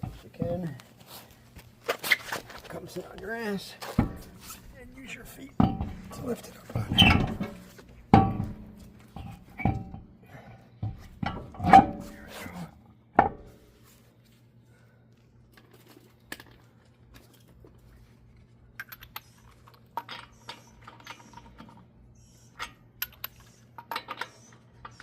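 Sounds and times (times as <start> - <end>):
metal knocks and clunks: 3.9 - 10.2, 10.8 - 12.3.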